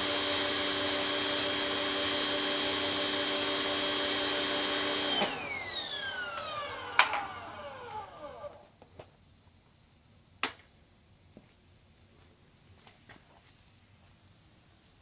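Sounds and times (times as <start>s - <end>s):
pressure washer motor whining: 0.0s - 8.6s.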